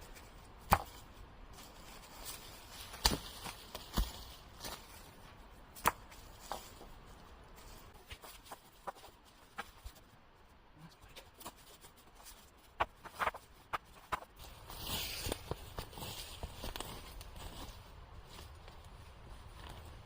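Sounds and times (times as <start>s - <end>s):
knocks of stones and wood: 12.8s - 14.4s.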